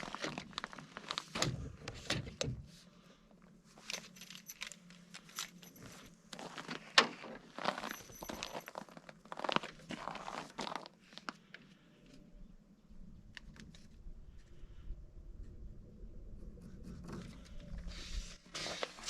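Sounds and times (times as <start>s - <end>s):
clinking and rattling clicks: 3.8s - 5.9s.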